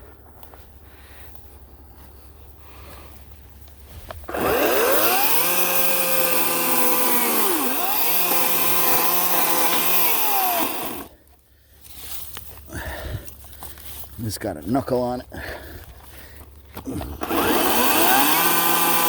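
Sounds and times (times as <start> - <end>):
electric chainsaw cutting wood: 4.2 - 11.2, 17.0 - 19.0.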